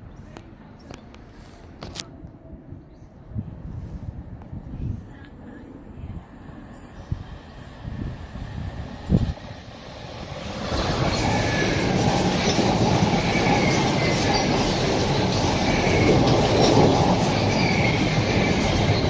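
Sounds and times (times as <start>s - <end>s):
train wheels clattering on rails: 10.2s - 19.0s
high wheel squeals: 10.8s - 19.0s.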